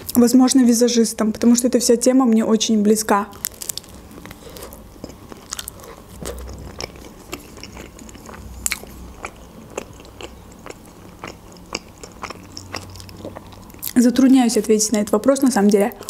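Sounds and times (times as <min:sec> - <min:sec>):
chewing with wet mouth clicks: 0:03.3 - 0:14.7.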